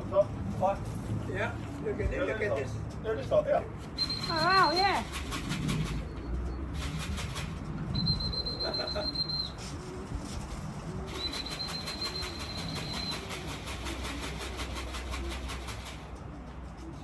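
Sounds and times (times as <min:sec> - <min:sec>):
high-pitched electronic beeps: 0:04.0 - 0:05.0, 0:07.9 - 0:09.6, 0:11.1 - 0:13.3
pigeons cooing: 0:04.0 - 0:17.0.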